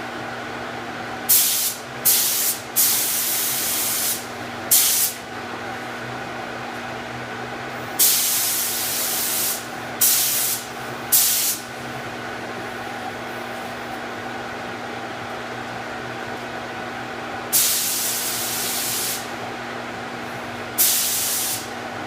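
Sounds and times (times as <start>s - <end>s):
spray gun hissing: 1.3s - 5.2s, 8.0s - 11.7s, 17.5s - 19.3s, 20.8s - 21.7s.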